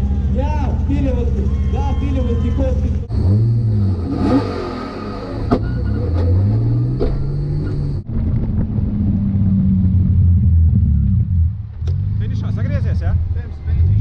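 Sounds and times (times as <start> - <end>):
car engine idling: 0.0 - 8.1
car engine revving: 2.4 - 14.0.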